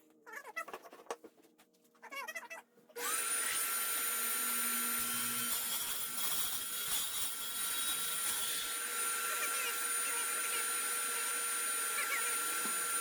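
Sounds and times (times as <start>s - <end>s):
electric motor whine: 3.0s - 13.0s.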